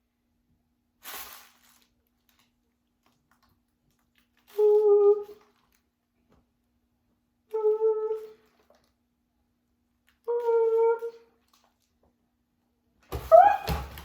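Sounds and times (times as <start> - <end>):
dog whining: 13.2 - 13.9.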